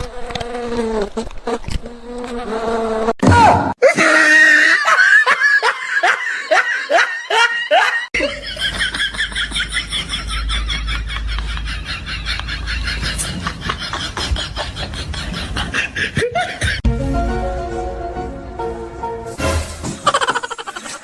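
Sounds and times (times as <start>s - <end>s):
person laughing: 3.8s - 16.8s, 19.8s - 21.0s.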